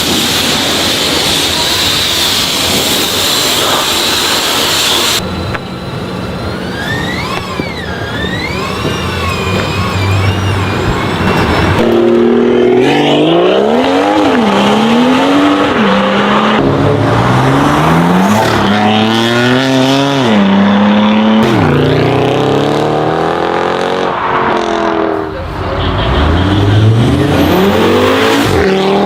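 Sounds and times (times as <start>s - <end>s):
car engine accelerating hard: 11.1s - 29.0s.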